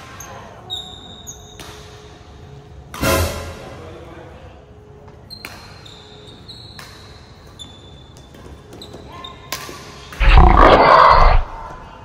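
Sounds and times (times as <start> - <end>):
loud burst of noise: 10.2 - 11.8.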